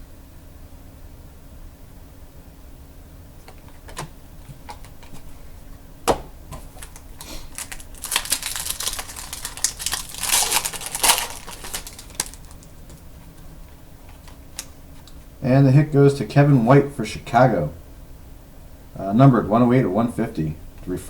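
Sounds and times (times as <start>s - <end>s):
foil wrapper crinkling and tearing: 6.6s - 13.0s.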